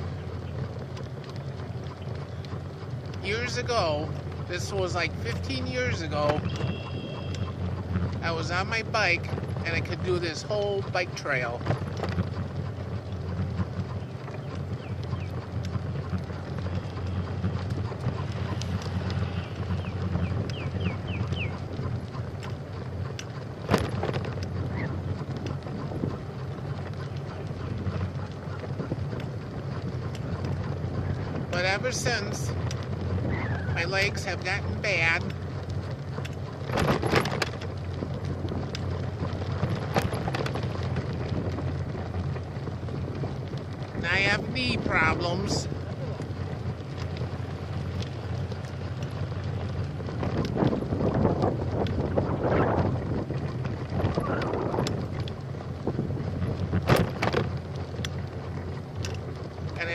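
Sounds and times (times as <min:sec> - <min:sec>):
low rumble of riding: 0:00.0 - 0:59.9
wind buffeting microphone: 0:00.0 - 0:59.9
sharp clicks: 0:11.6 - 0:25.8
faint clicks: 0:11.6 - 0:31.2, 0:35.3 - 0:41.3, 0:56.8 - 0:59.8
wind on microphone: 0:23.6 - 0:35.2, 0:48.8 - 0:58.7.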